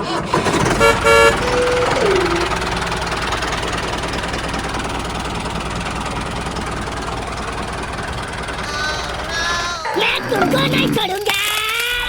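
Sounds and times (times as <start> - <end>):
engine running: 0.0 - 11.2
vehicle horn honking: 0.7 - 2.6
short falling tone: 1.3 - 2.7.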